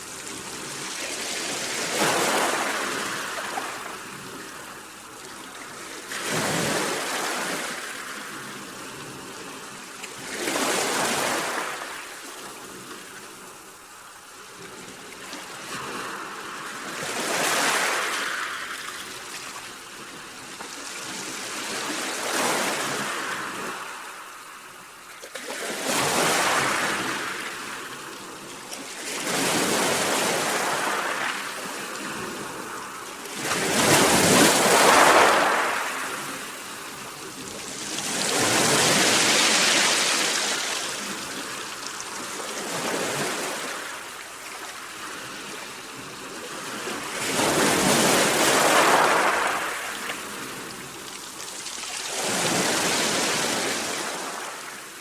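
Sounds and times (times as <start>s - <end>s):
sea waves breaking: 0.0s - 8.9s, 25.3s - 55.0s.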